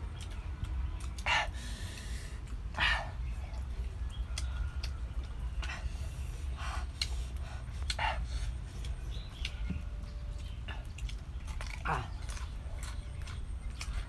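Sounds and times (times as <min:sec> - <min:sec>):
chewing and lip smacks: 0:00.0 - 0:14.0
short breaths: 0:01.2 - 0:03.3
sharp mouth clicks: 0:06.8 - 0:09.6.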